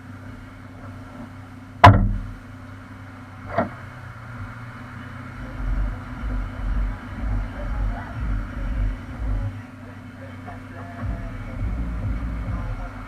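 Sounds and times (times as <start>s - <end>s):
vehicle low hum: 0.0s - 13.0s
sharp knocks: 1.8s - 2.4s
uneven low rumble: 5.2s - 13.0s.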